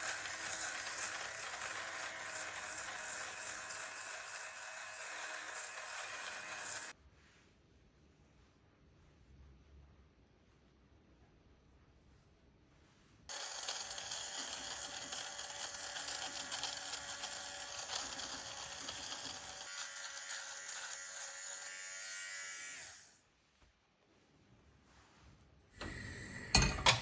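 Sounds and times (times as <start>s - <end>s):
small electric motor whirring: 0.0s - 6.9s, 13.3s - 23.2s.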